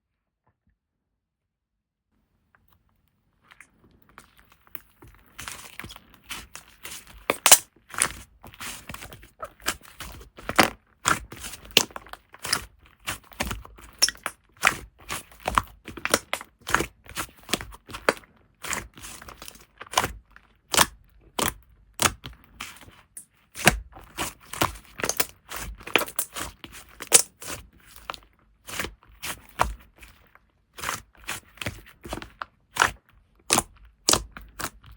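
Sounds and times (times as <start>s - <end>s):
slime popping and crackling: 4.2s - 22.8s, 23.6s - 29.8s.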